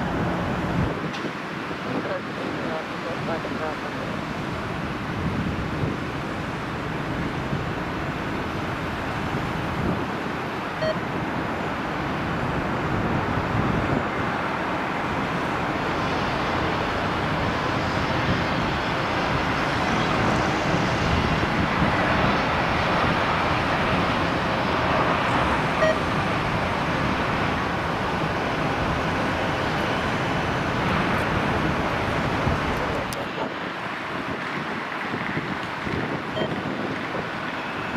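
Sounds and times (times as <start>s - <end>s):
jet engines rushing: 0.0s - 37.9s
wind buffeting microphone: 0.0s - 37.9s.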